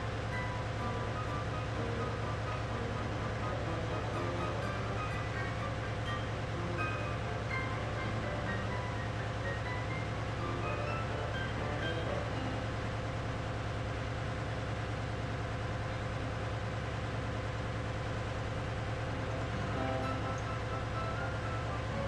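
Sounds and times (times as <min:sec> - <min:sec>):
diesel engine droning: 0:00.0 - 0:22.0.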